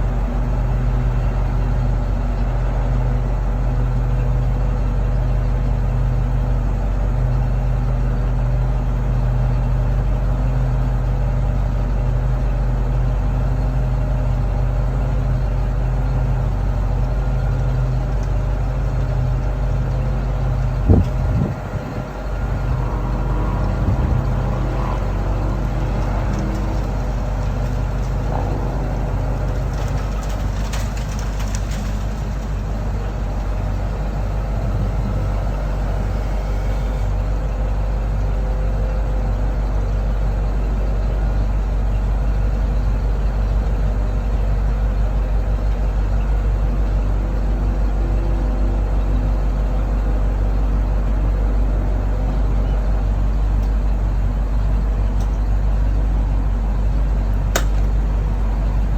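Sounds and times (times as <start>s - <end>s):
truck engine idling: 0.0s - 58.9s.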